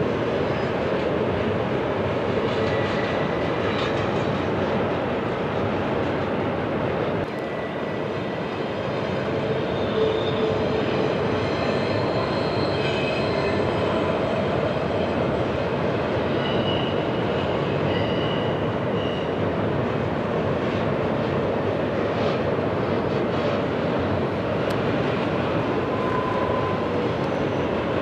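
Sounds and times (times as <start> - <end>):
train wheels rumbling on rail: 0.0 - 28.0
high-pitched wheel squeals: 9.6 - 14.3, 16.3 - 19.4, 25.8 - 27.8.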